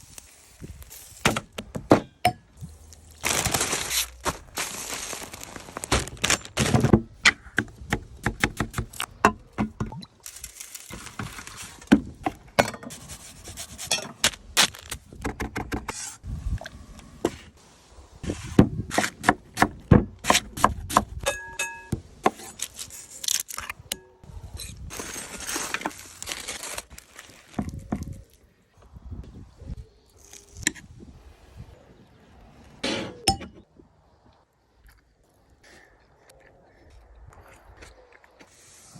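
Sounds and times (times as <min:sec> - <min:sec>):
hissing or rustling: 0:00.0 - 0:01.6, 0:02.6 - 0:06.6, 0:38.2 - 0:38.9
utensils and cookware clattering: 0:21.3 - 0:22.0.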